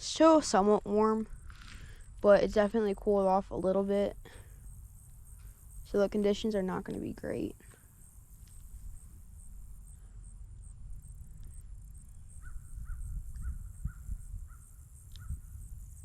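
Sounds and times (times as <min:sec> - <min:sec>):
steady low rumble: 0:08.6 - 0:16.0.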